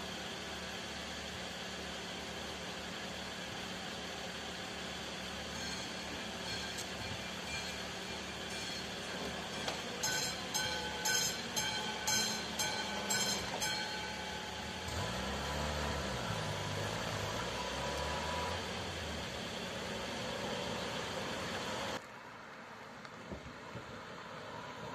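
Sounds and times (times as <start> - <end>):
diesel train passing: 0.0 - 22.0
level crossing warning bell: 4.6 - 17.5.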